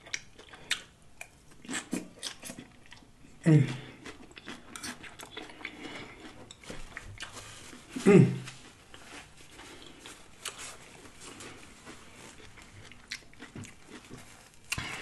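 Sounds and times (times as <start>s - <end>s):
chewing crunchy food: 0.0s - 15.0s
person humming mm: 3.4s - 4.0s, 8.0s - 8.6s.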